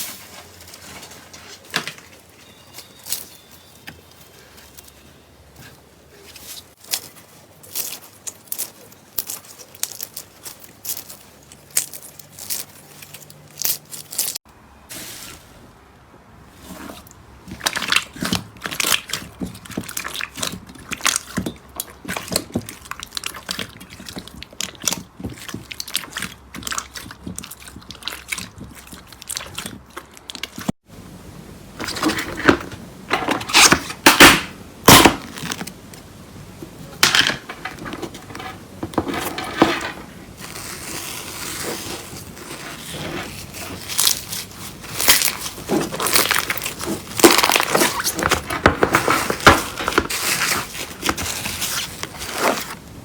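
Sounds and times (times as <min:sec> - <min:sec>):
slime crackling and popping: 0:43.6 - 0:48.4.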